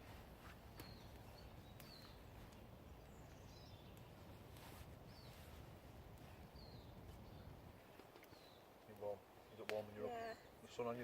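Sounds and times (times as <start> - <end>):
bird chirping: 0.4 - 5.6, 6.2 - 8.8.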